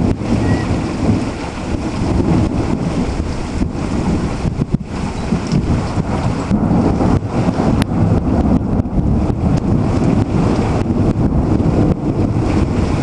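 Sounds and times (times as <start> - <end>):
heavy rain: 0.0 - 13.0
wind buffeting microphone: 0.0 - 13.0.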